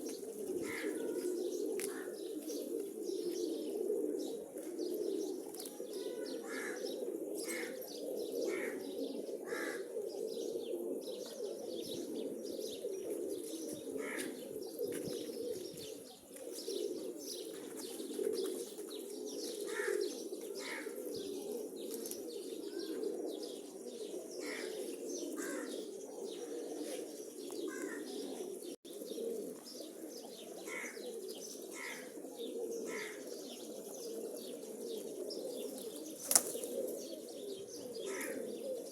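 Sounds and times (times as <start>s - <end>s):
pigeons cooing: 0.0s - 38.9s.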